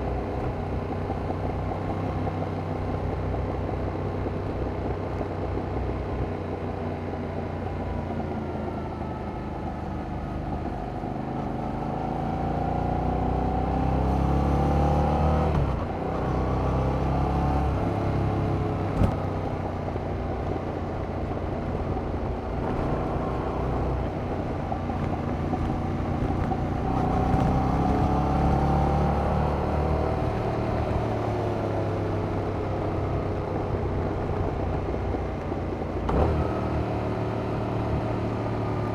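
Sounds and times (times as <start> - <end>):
motorcycle engine accelerating: 8.0 - 38.9.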